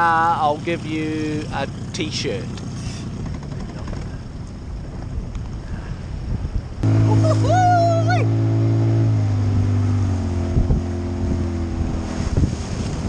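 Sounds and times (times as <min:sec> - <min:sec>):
outboard motor humming: 0:00.0 - 0:13.0
rising and falling high tone: 0:06.8 - 0:11.8.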